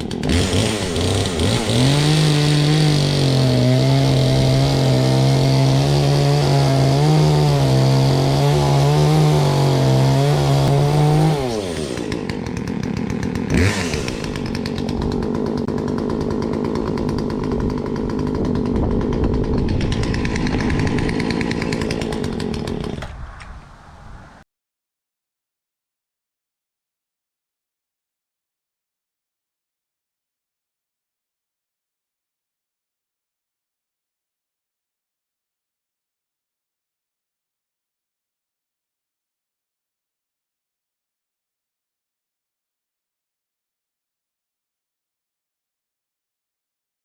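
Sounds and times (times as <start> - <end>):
chainsaw revving and idling: 0.0 - 23.2.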